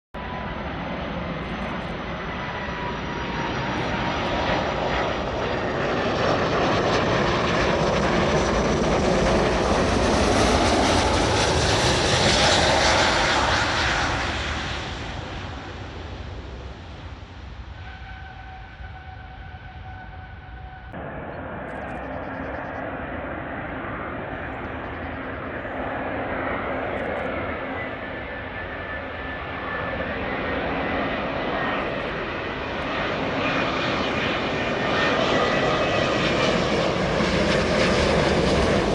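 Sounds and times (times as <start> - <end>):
jet airliner passing: 0.2 - 38.9
steady whine: 12.7 - 38.8.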